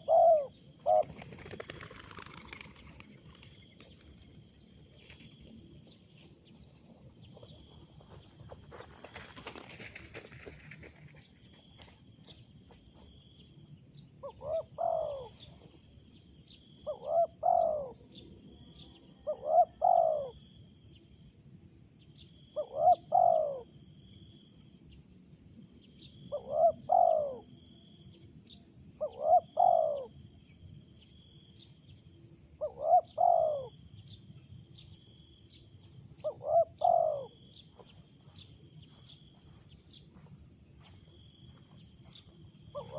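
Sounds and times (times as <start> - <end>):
dove cooing: 0.0 - 3.0, 14.2 - 15.8, 16.8 - 20.4, 22.6 - 23.8, 26.3 - 27.7, 29.0 - 30.2, 32.6 - 33.8, 36.2 - 38.0.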